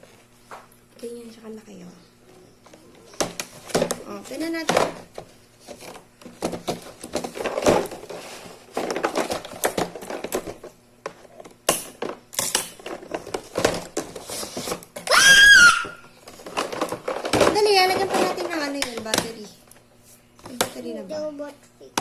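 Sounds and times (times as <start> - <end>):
plastic parts clicking and knocking: 3.2 - 15.1, 16.3 - 19.4.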